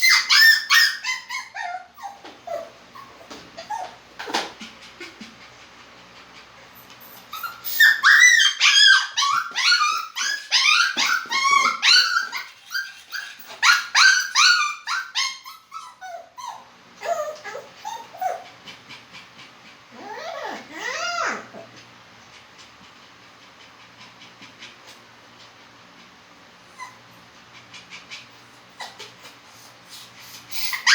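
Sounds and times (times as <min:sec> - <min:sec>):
dog whimpering and yipping: 0:00.0 - 0:04.0, 0:06.7 - 0:18.6, 0:19.9 - 0:21.7, 0:26.7 - 0:27.3, 0:28.7 - 0:30.9.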